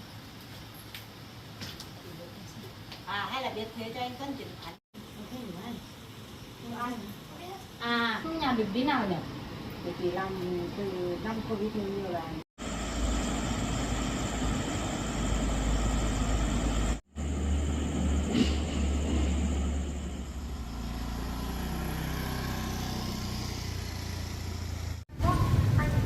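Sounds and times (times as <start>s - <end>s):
vehicle engine humming: 10.4s - 26.0s.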